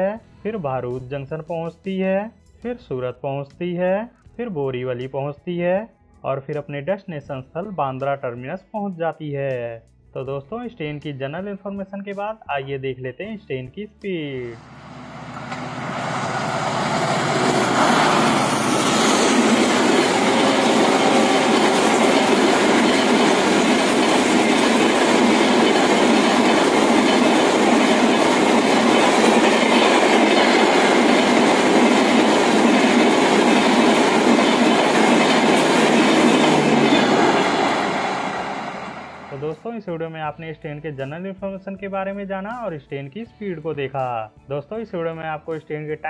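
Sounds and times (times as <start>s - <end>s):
train passing at speed: 14.4s - 39.6s.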